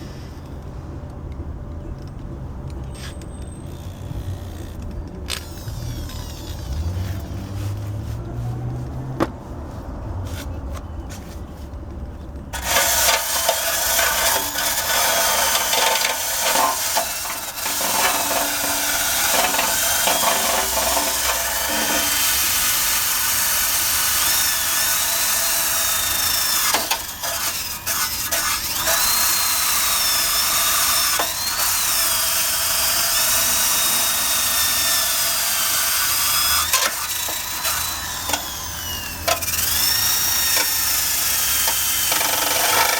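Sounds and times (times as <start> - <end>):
drill wire brush scrubbing metal: 12.6 - 42.9.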